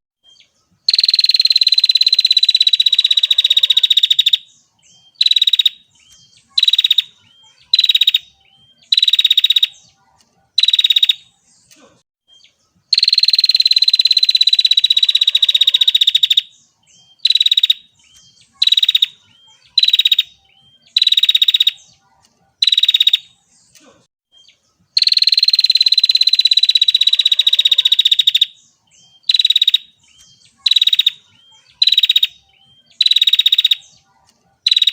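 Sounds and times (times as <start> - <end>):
bird buzzy ticking trill: 0.9 - 4.5, 5.1 - 9.7, 10.6 - 11.3, 12.9 - 16.5, 17.1 - 21.8, 22.6 - 23.3, 25.0 - 28.6, 29.2 - 33.8, 34.7 - 34.9.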